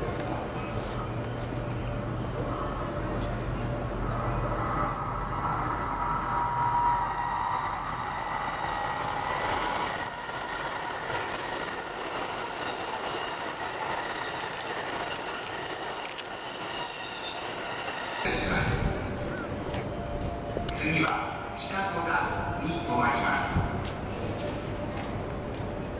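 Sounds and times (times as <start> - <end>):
train wheels rumbling: 0.0 - 22.6
wheels squealing: 4.0 - 18.3.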